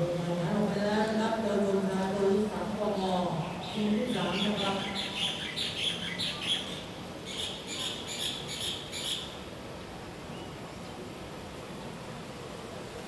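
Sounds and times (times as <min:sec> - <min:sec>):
faint background hiss: 0:00.0 - 0:13.0
bird chirping: 0:03.6 - 0:09.3.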